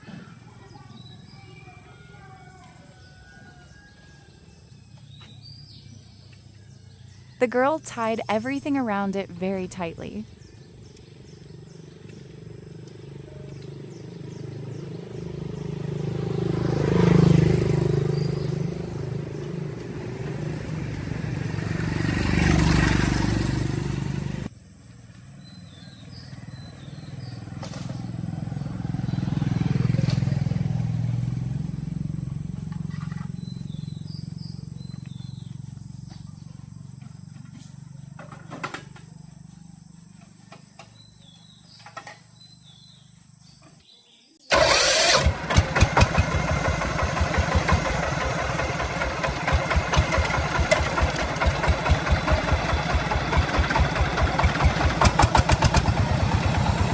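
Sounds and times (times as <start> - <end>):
vehicle engine passing by: 10.2 - 43.6, 44.5 - 56.9.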